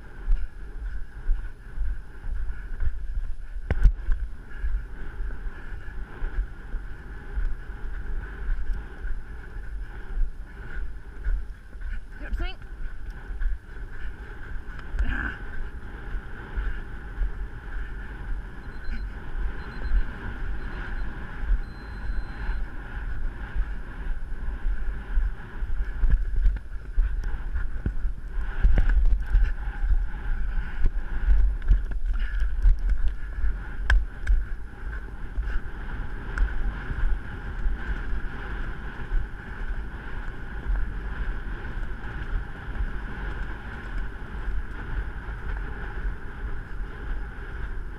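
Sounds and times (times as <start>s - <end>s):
wind rushing over microphone: 0.0s - 47.9s
low irregular thuds: 23.2s - 47.8s.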